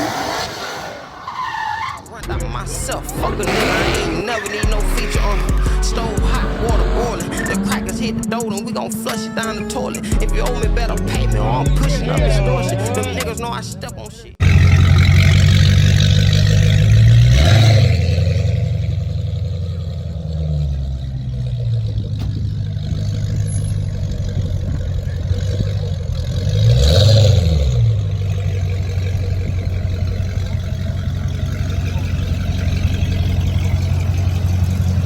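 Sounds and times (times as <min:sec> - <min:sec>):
car engine idling and revving: 0:00.0 - 0:35.0.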